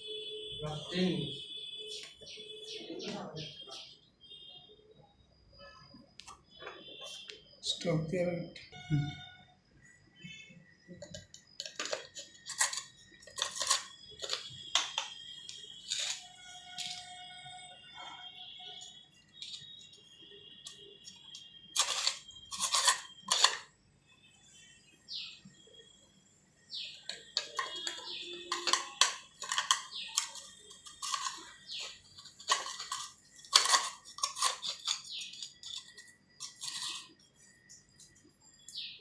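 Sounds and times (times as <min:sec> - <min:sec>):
clicks and scrapes of hard parts: 0:11.0 - 0:17.1, 0:20.6 - 0:23.7, 0:27.0 - 0:38.2.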